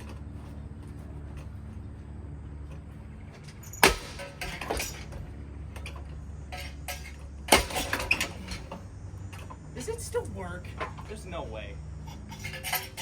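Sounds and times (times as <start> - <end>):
broken parts clattering: 2.5 - 11.4, 12.0 - 13.0.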